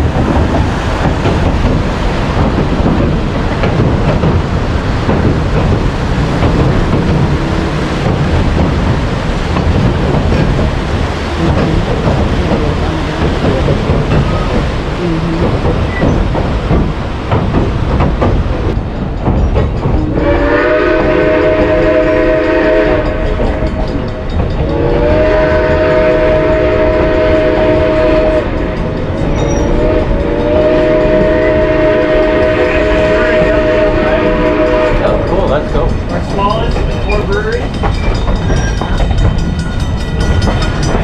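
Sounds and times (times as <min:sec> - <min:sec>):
train rumble and clickety-clack: 0:00.0 - 0:41.0
steam locomotive whistle: 0:20.1 - 0:23.7, 0:24.6 - 0:28.8, 0:29.4 - 0:35.5.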